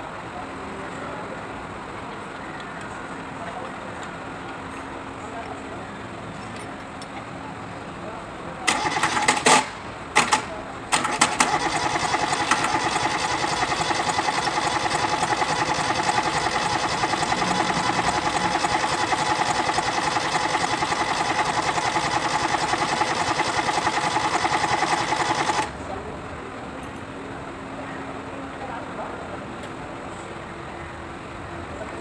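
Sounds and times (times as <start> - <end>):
diesel engine starter cranking: 8.7 - 25.8.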